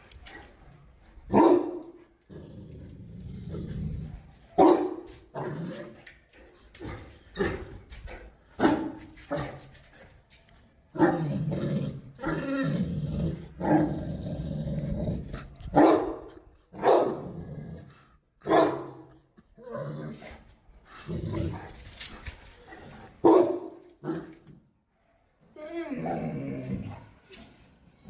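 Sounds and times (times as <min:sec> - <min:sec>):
dog barking: 0:01.3 - 0:01.8, 0:04.6 - 0:05.2, 0:08.6 - 0:09.0, 0:15.8 - 0:16.2, 0:16.8 - 0:17.2, 0:18.4 - 0:19.0, 0:23.2 - 0:23.8.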